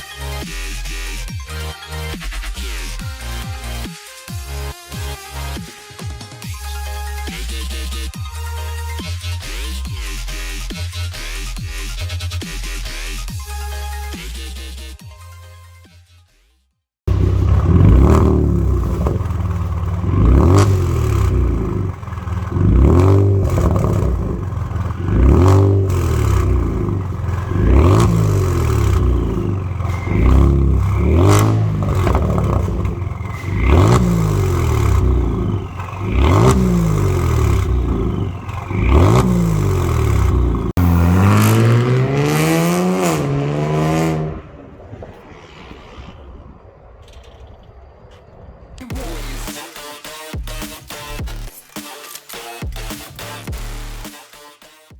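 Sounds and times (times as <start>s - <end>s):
car engine idling: 17.1s - 43.5s
car engine revving: 17.1s - 44.7s
exhaust crackles and pops: 17.1s - 49.5s.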